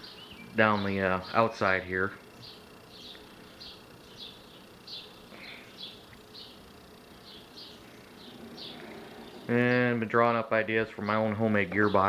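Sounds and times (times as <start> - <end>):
faint cricket chirping: 0.0 - 12.0.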